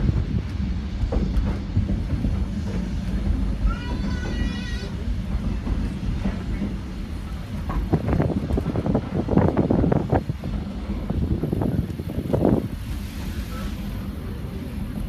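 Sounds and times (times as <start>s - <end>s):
train car rolling on rails: 0.0s - 15.0s
train rattling and clatter: 0.0s - 15.0s.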